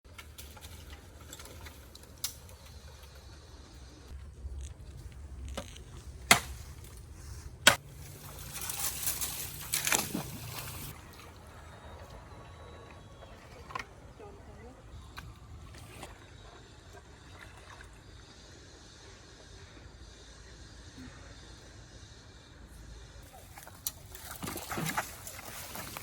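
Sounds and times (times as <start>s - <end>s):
water splashing: 8.0s - 11.4s.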